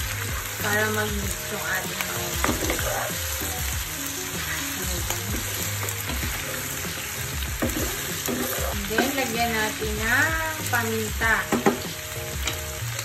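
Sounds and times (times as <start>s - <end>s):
meat sizzling in a frying pan: 0.0s - 13.0s
spatula scraping a pan: 2.2s - 3.4s, 5.3s - 9.4s.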